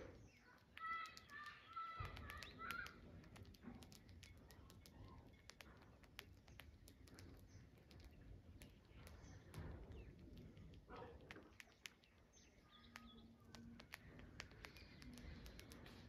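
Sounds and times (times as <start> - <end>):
faint bird call: 0.0 - 3.0
faint clicks: 0.0 - 16.0.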